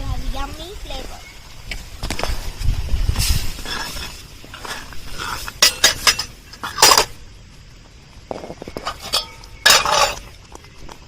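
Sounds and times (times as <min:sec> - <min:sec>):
utensils scraping pots: 0:03.3 - 0:07.2, 0:08.4 - 0:10.4
utensils clinking against pots: 0:04.6 - 0:07.2, 0:08.8 - 0:10.4.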